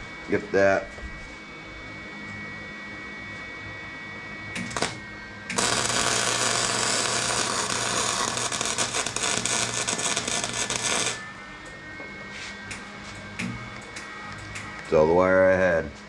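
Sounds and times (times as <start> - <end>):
welder humming: 0.0 - 16.0
welding arc crackling: 4.6 - 11.3, 12.7 - 15.0.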